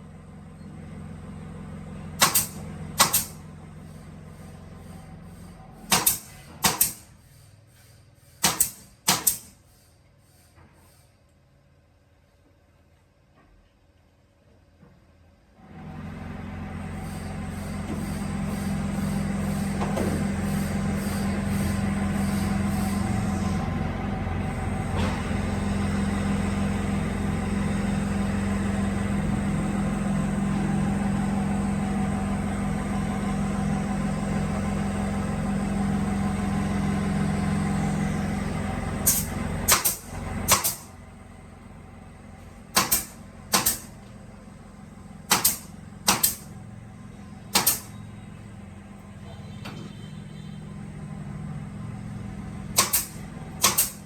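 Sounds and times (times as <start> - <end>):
drilling machine motor humming: 16.8 - 49.2.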